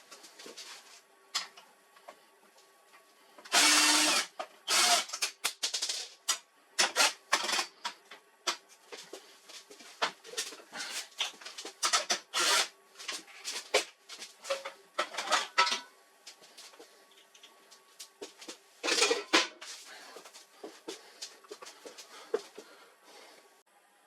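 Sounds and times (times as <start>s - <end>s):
plastic parts clicking and rattling: 4.9s - 8.0s.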